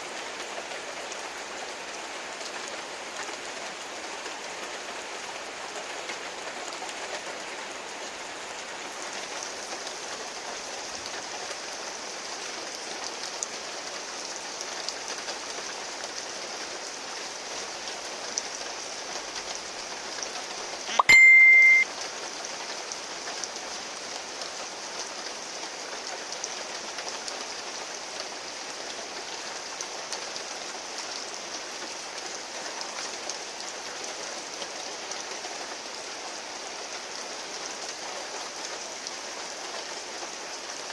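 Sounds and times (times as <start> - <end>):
heavy rain falling: 0.0 - 20.9, 21.8 - 40.9
loud high beep: 20.9 - 21.8.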